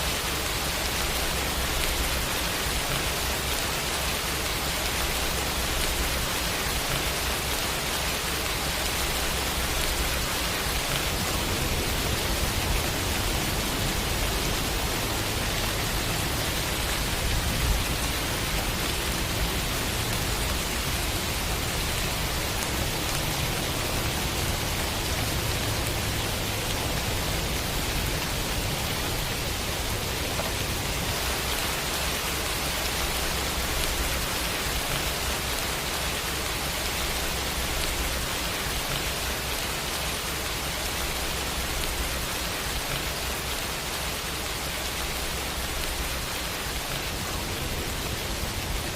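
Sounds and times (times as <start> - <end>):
heavy rain falling: 0.0 - 48.9.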